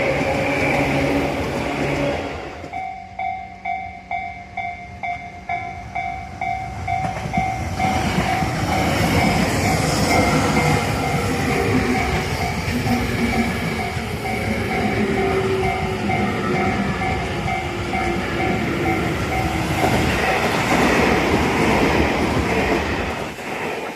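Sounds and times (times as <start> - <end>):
train passing rumble: 0.0 - 23.9
level crossing bell ringing: 2.7 - 12.6
train wheel clatter: 6.9 - 23.9.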